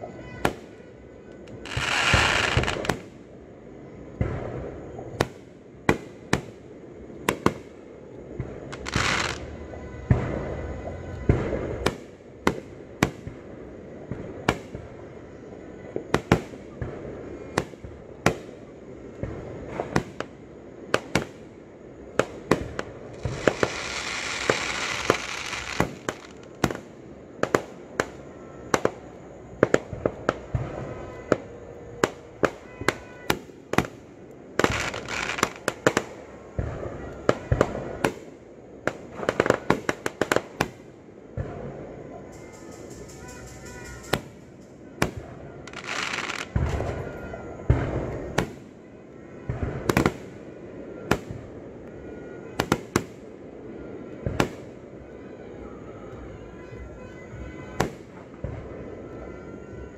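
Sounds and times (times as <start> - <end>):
fireworks bangs: 0.0 - 59.9
dense hissing rush: 1.5 - 15.7, 16.8 - 32.4.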